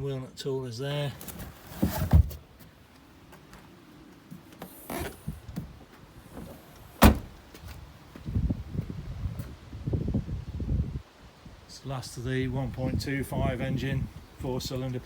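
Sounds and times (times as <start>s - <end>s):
tailgate thump: 4.6s - 7.5s.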